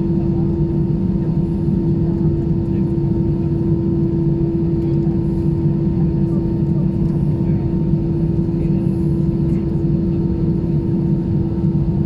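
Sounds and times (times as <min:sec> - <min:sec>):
airplane cabin engine hum: 0:00.0 - 0:12.0.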